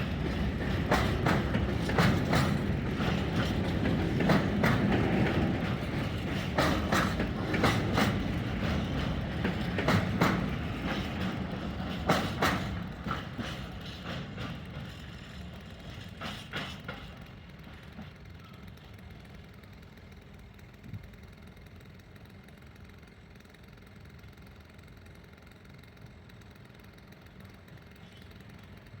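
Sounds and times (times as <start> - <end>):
train wheels clattering on rails: 0.0 - 21.1
faint steady rumble: 0.0 - 29.0.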